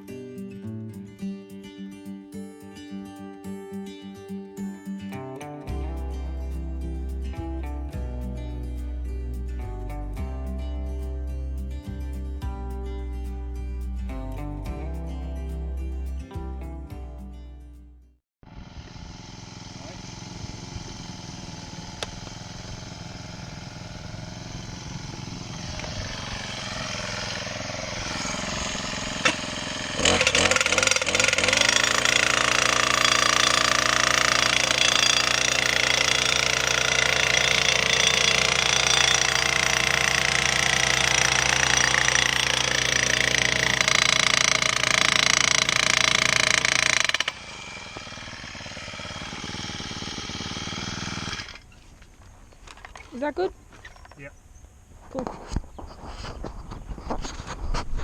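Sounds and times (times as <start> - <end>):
small petrol engine revving: 18.4 - 51.9.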